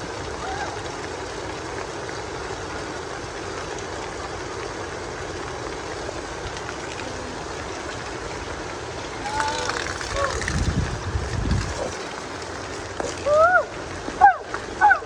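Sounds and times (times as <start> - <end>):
heavy rain: 0.0 - 14.8
running water: 0.0 - 15.0.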